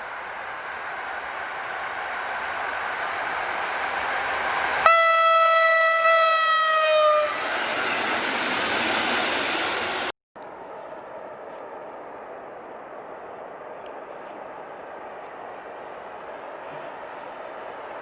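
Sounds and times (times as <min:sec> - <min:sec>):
passing train rumble: 0:00.0 - 0:18.0
train horn blast: 0:04.8 - 0:07.5.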